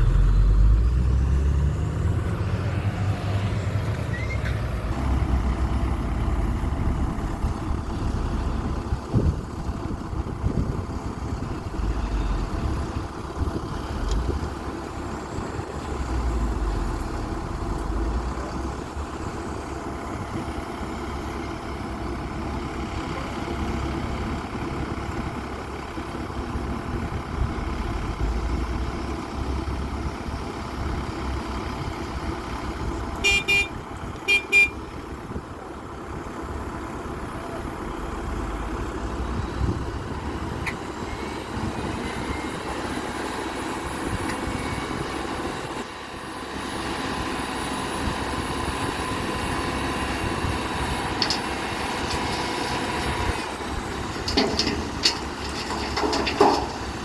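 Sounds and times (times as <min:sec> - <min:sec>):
excavator diesel engine running: 0:00.0 - 0:57.0
short high horn toots: 0:33.2 - 0:34.8.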